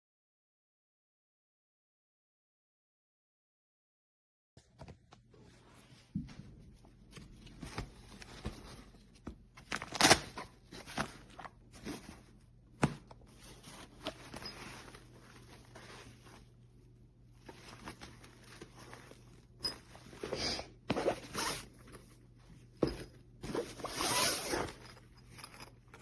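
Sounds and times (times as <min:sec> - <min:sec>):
fabric bag rustling: 0:05.4 - 0:26.0
bag clicks and knocks: 0:07.1 - 0:16.5, 0:17.4 - 0:22.1, 0:22.7 - 0:26.0.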